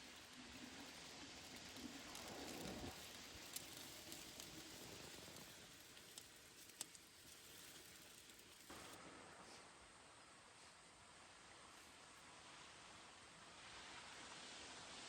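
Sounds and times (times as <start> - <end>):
rain hissing: 0.0 - 9.3.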